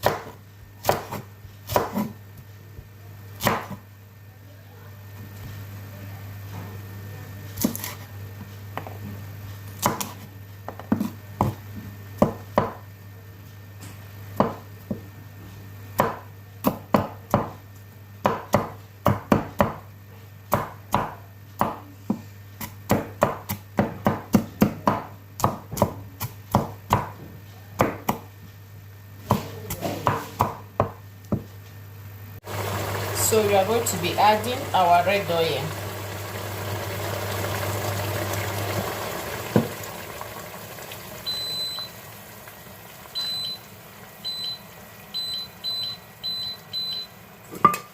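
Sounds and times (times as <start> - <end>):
knife chopping on cutting board: 0.0 - 2.2, 3.4 - 3.8, 20.5 - 27.2, 29.2 - 31.4.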